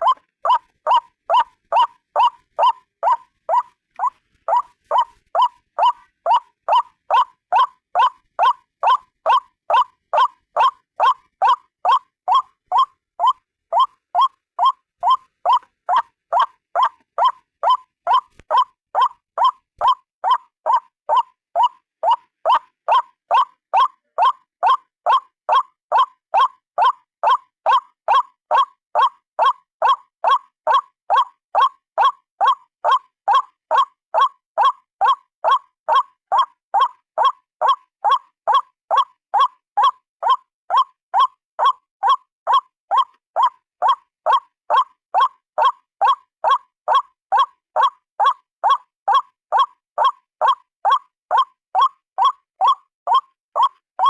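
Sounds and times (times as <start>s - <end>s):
waterhen calling: 0.0s - 23.9s.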